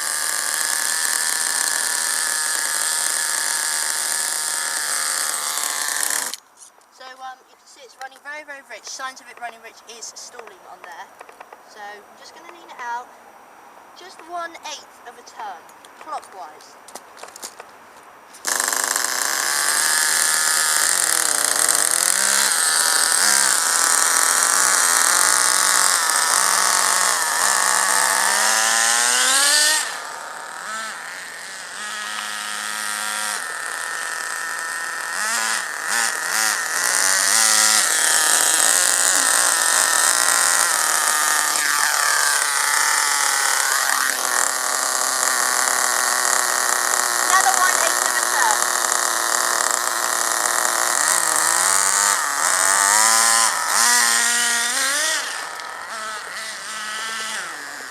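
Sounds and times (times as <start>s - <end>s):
model nitro engine revving: 0.0s - 6.4s, 18.4s - 57.9s.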